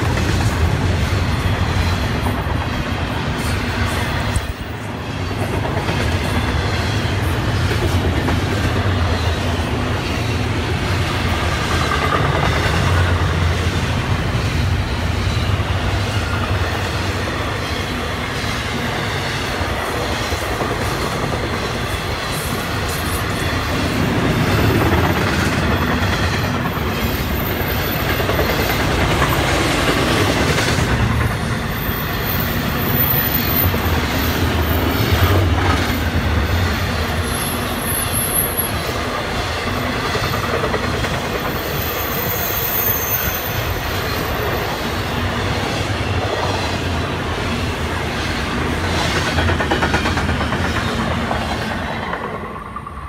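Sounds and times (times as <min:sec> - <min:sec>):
train wheels rumbling on rails: 0:00.0 - 0:53.0
high-pitched wheel squeals: 0:41.5 - 0:44.8.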